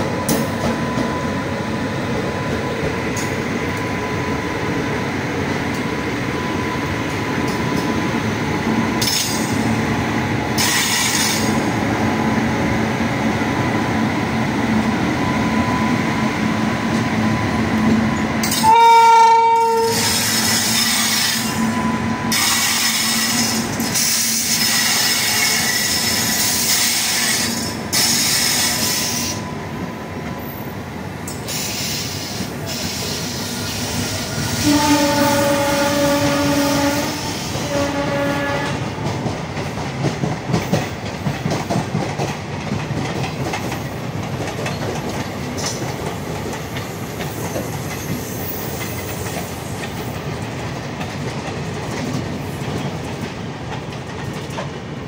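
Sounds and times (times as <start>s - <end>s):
locomotive horn: 18.4s - 20.2s, 34.2s - 39.0s.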